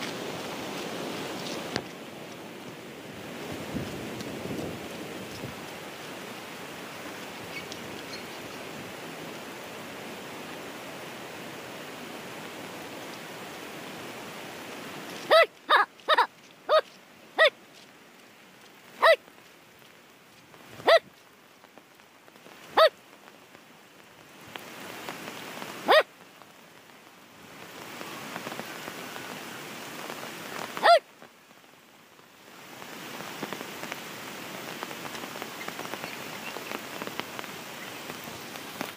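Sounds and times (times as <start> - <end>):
rain falling: 0.0 - 38.9
animal barking: 15.3 - 17.6, 19.0 - 19.2, 20.8 - 21.1, 22.8 - 23.0, 25.8 - 26.1, 30.8 - 31.0.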